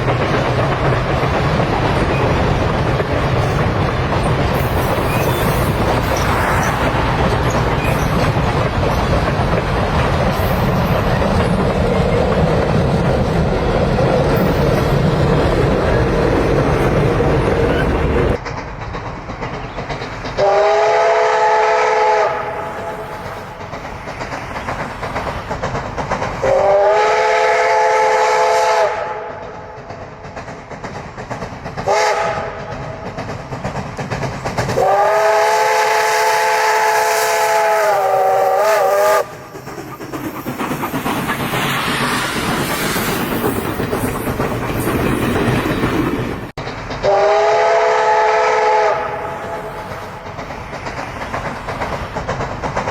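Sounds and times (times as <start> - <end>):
steam hissing: 0.0 - 52.9
train rumbling: 0.0 - 52.9
steam locomotive chime whistle: 20.4 - 23.1, 26.4 - 29.4, 31.9 - 32.6, 34.8 - 39.4, 47.0 - 49.8.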